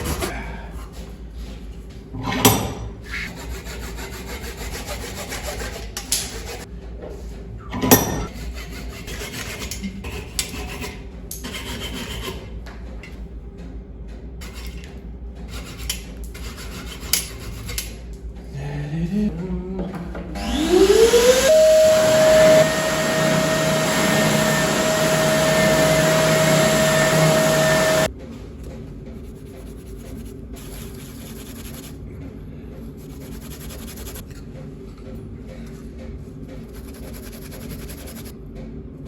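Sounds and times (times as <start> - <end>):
hand tool scraping wood: 3.1 - 6.7, 8.3 - 12.4.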